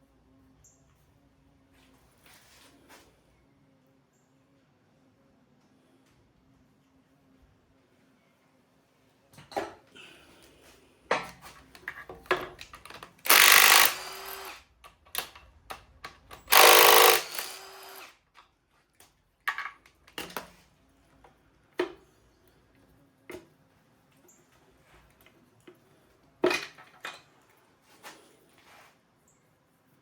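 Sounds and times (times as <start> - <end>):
power tool running: 13.2 - 14.6, 16.4 - 18.1.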